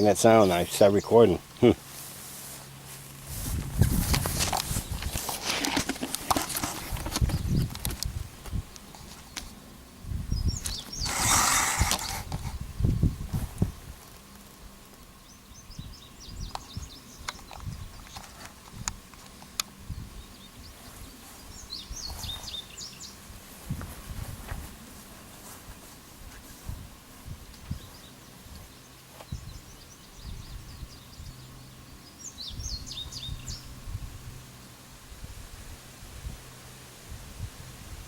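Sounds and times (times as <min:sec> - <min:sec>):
birds chirping: 0:00.0 - 0:01.9, 0:07.0 - 0:09.6, 0:10.3 - 0:12.3, 0:15.1 - 0:23.2, 0:27.4 - 0:33.8
handling rustling and knocking: 0:03.5 - 0:09.2.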